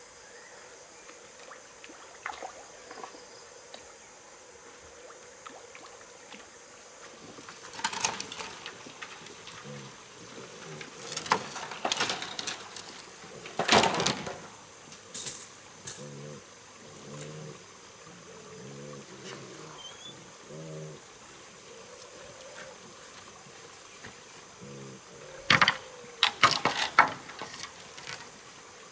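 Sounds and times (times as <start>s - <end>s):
crackling and rustling: 7.1s - 17.6s, 21.2s - 28.9s
pig grunting: 9.5s - 11.7s, 15.9s - 21.2s, 24.6s - 25.5s.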